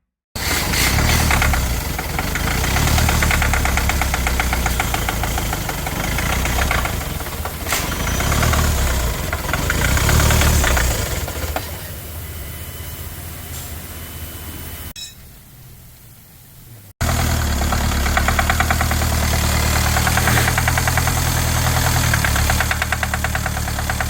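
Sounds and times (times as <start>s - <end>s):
diesel engine knocking clatter: 0.4s - 12.2s, 17.0s - 24.0s.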